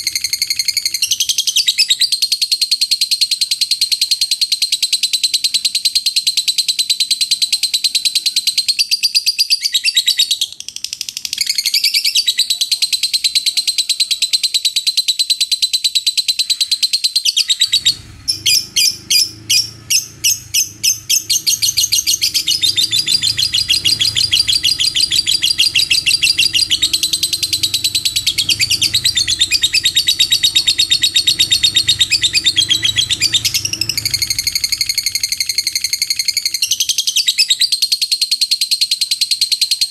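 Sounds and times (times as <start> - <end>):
lovebird trilling: 0.0 - 39.6
low hum: 17.6 - 36.8.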